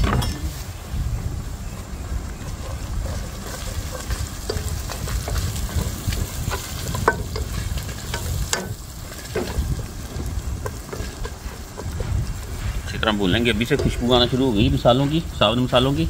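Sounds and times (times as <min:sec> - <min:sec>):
food sizzling in oil: 0:01.7 - 0:16.0
spatula scraping a pot: 0:02.4 - 0:14.5.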